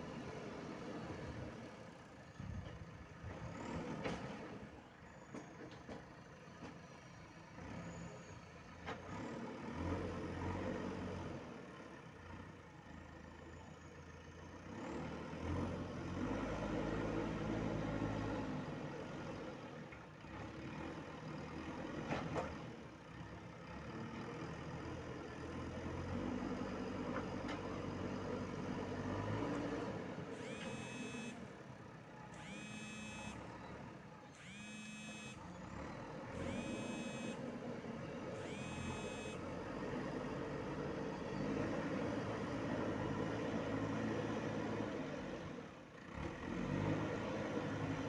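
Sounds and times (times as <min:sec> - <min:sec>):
diesel engine revving: 0:09.1 - 0:12.4, 0:14.2 - 0:48.0
reversing alarm beeping: 0:30.4 - 0:31.4, 0:32.4 - 0:33.4, 0:34.4 - 0:35.4, 0:36.4 - 0:37.4, 0:38.4 - 0:39.4.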